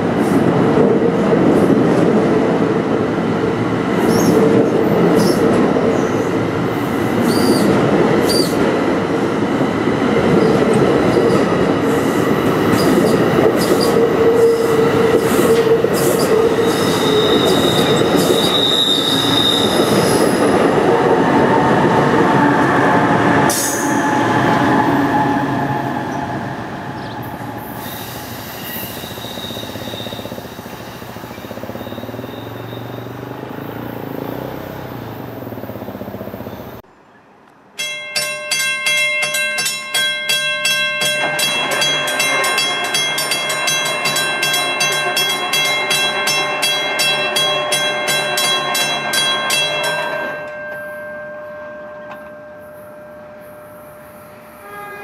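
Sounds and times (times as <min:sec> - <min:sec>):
passenger train passing: 0:00.0 - 0:55.0
train horn long blast: 0:51.7 - 0:55.0.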